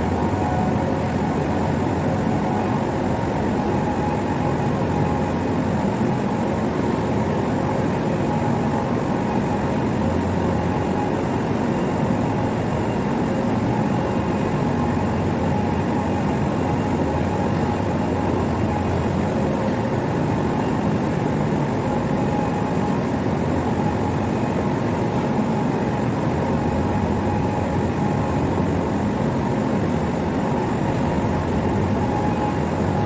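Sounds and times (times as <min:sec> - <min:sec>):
industrial machinery humming: 0:00.0 - 0:22.2.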